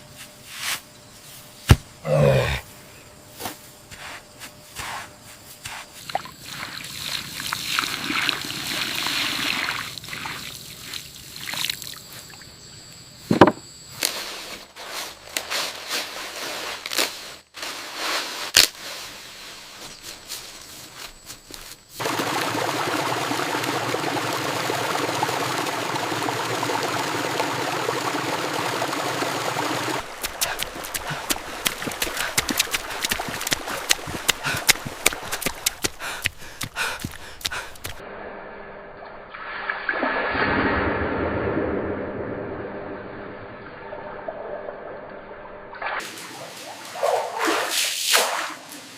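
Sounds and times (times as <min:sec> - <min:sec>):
water trickling and pouring: 0:06.4 - 0:12.0, 0:22.0 - 0:35.9
rush of flowing water: 0:22.0 - 0:38.0.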